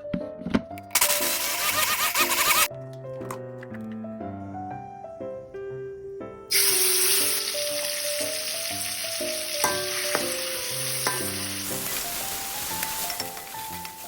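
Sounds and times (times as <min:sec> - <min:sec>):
background music: 0:00.0 - 0:14.0
food sizzling in hot oil: 0:06.5 - 0:14.0.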